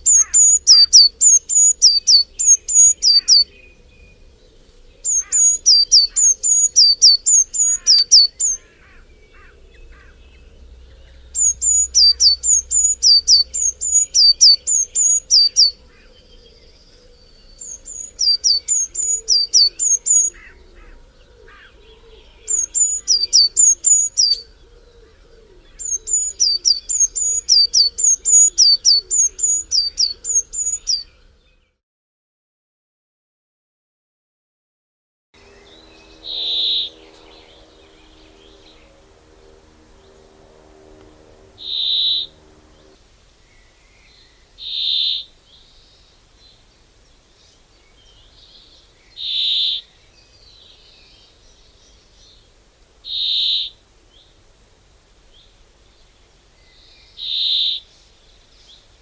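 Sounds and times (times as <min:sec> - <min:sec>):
faint lower bird chatter: 0:00.0 - 0:31.8, 0:35.4 - 0:54.4, 0:55.1 - 0:59.0
songbird sharp high notes: 0:05.1 - 0:08.8, 0:09.7 - 0:15.8, 0:35.4 - 0:43.0.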